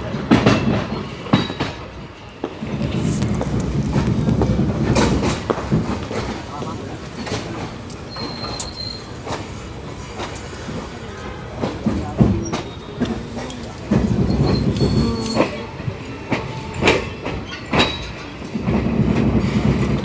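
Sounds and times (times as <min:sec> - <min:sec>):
train wheels clickety-clack: 0:00.0 - 0:20.0
high wheel squeal: 0:08.1 - 0:09.2, 0:12.4 - 0:13.4, 0:14.0 - 0:15.9
low wheel squealing: 0:08.1 - 0:09.2, 0:12.2 - 0:15.8.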